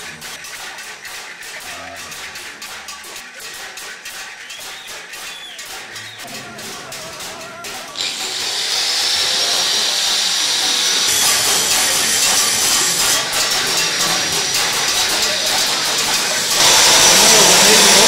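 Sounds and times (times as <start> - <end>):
power tool grinding metal: 5.7 - 18.0.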